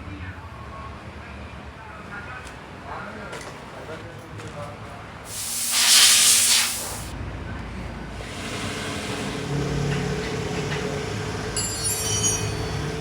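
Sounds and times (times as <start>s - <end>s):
water spray hissing: 5.3s - 7.1s.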